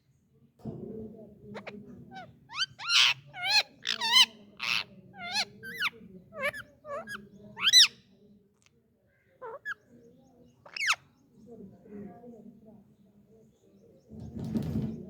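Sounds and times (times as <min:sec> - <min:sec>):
parakeet shrill calls: 0:02.6 - 0:07.9, 0:10.7 - 0:11.0.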